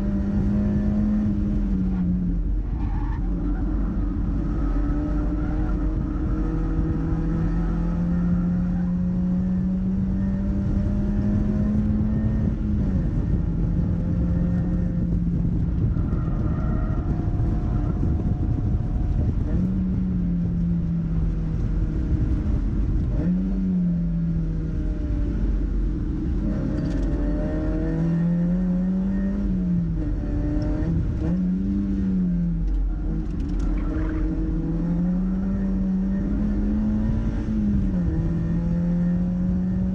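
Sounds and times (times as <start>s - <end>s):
car engine revving: 0.0s - 39.9s
road and wind noise: 0.0s - 39.9s.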